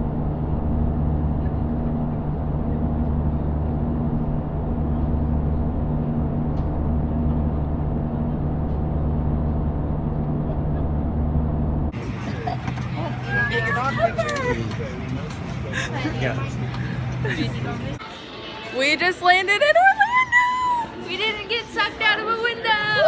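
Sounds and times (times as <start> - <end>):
airliner engine drone in cabin: 0.0 - 18.0.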